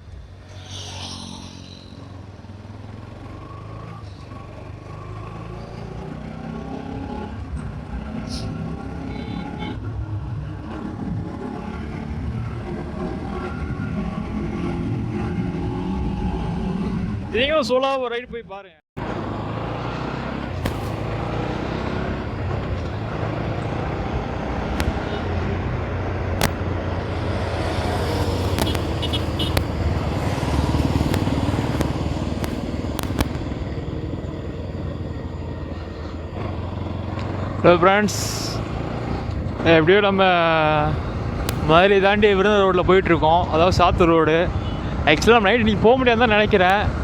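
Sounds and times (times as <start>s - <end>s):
motorcycle engine running: 19.0s - 42.7s
wind rumble on microphone: 20.4s - 37.5s, 39.1s - 47.0s
sharp clicks: 24.7s - 25.3s, 26.4s - 26.6s, 27.9s - 33.8s.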